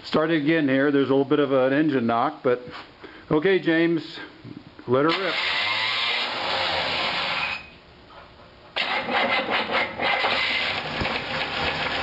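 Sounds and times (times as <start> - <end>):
car engine starting and running: 8.8 - 12.0
engine knocking: 8.9 - 12.0.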